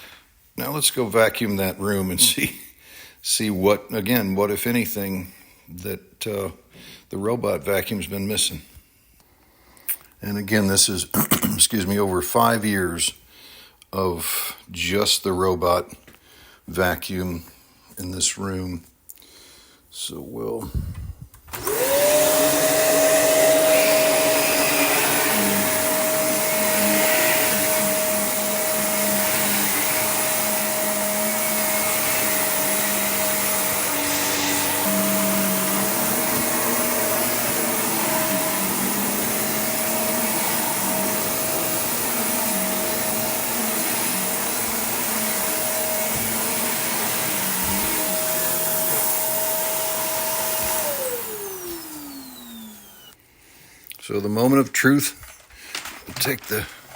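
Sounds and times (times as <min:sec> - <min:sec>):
vacuum cleaner running: 0:01.6 - 0:02.5, 0:21.5 - 0:53.2.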